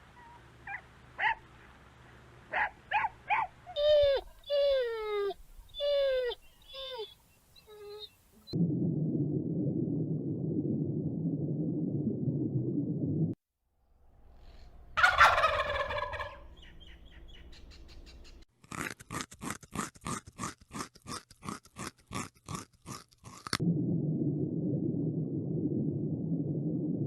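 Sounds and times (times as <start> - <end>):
steady low rumbling noise: 8.5 - 13.4, 23.6 - 27.0
fowl crying loudly: 15.0 - 16.4.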